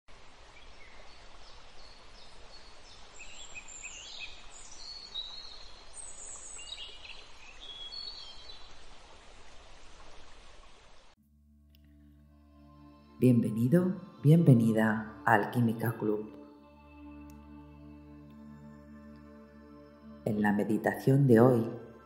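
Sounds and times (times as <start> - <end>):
steady outdoor hiss: 0.1 - 11.2
birds chirping and singing: 0.8 - 8.7.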